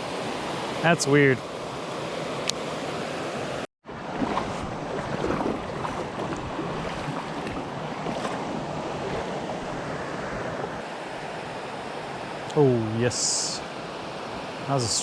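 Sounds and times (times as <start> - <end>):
wind on microphone: 3.9 - 10.7.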